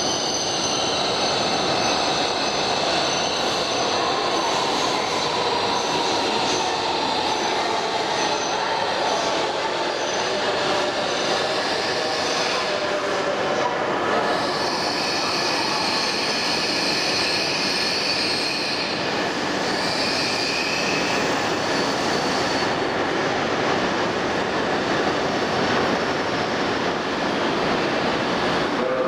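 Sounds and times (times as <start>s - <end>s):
high squeal: 0.0s - 13.0s, 14.2s - 22.9s
train rumbling past: 0.0s - 29.0s.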